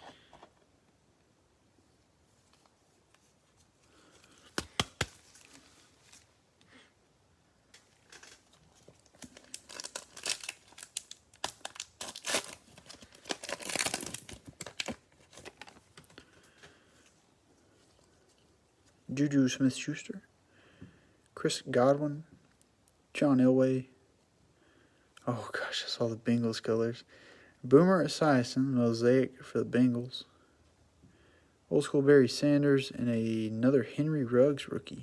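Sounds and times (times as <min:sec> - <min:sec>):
cellophane tearing and crinkling: 0:04.2 - 0:06.4, 0:07.7 - 0:16.2
sharp snaps: 0:04.4 - 0:05.2.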